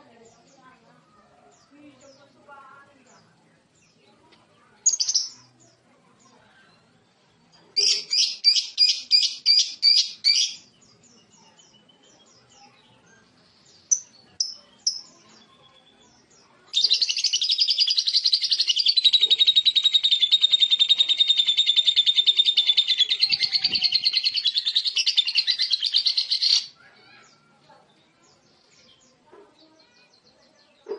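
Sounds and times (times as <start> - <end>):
lovebird chirping and trilling: 4.8 - 5.8, 7.8 - 27.4.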